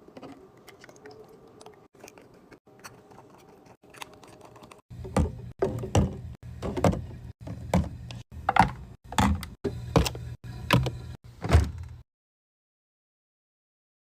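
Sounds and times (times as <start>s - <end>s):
items knocking and clattering: 3.9s - 12.0s.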